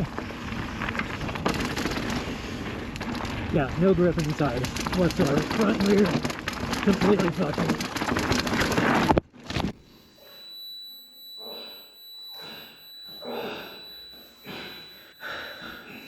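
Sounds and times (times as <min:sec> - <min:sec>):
wind and mountain bike trail noise: 0:00.0 - 0:06.9
person breathing heavily: 0:12.4 - 0:16.0.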